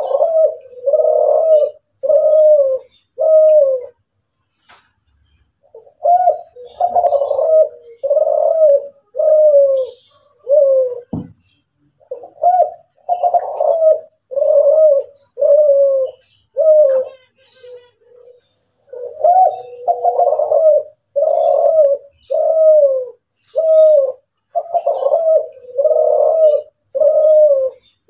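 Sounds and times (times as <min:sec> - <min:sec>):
dove cooing: 0:00.0 - 0:04.1, 0:05.6 - 0:28.0
brief knock: 0:11.1 - 0:11.4.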